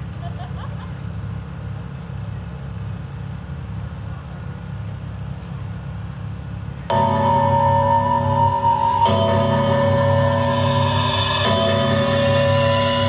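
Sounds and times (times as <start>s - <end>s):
low hum of outdoor background: 0.0s - 7.3s.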